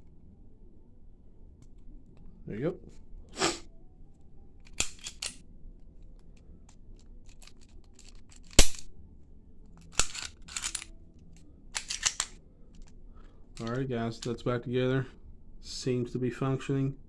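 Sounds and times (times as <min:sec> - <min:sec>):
pistol parts clicking and clacking: 0:04.6 - 0:08.9, 0:09.6 - 0:13.0, 0:13.6 - 0:14.4.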